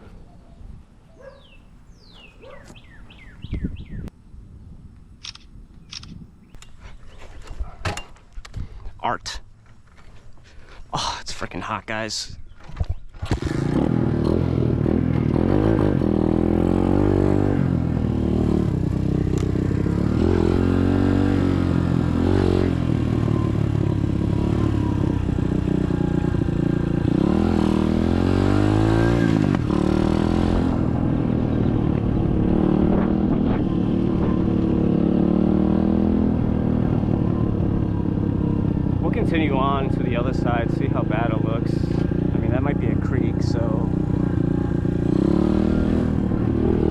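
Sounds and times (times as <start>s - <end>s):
dirt bike engine revving: 13.3s - 46.9s.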